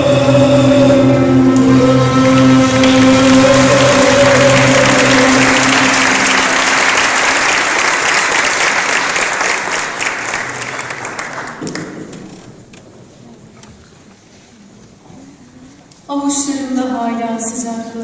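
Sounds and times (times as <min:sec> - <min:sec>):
held musical note: 0:00.0 - 0:08.1
audience applauding: 0:01.6 - 0:12.4.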